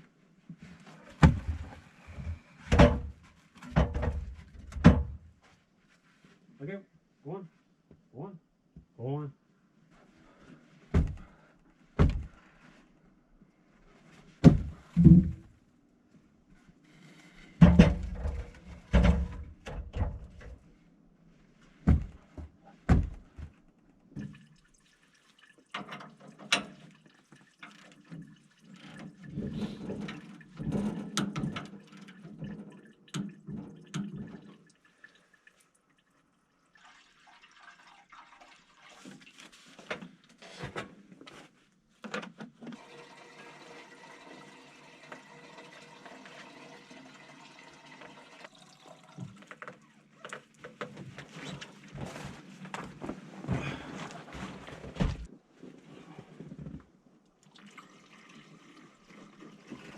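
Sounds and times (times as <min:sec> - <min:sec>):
sharp clunks and knocks: 0:10.9 - 0:11.3, 0:12.0 - 0:12.4, 0:14.4 - 0:15.5
liquid pouring into tank: 0:24.2 - 0:39.5, 0:42.8 - 0:49.8, 0:57.4 - 0:59.9.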